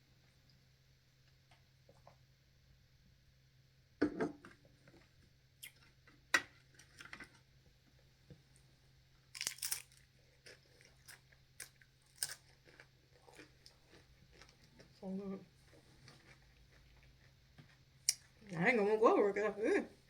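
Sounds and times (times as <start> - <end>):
crunchy food bites: 9.3 - 15.0
person chewing: 9.4 - 15.0, 15.6 - 18.4.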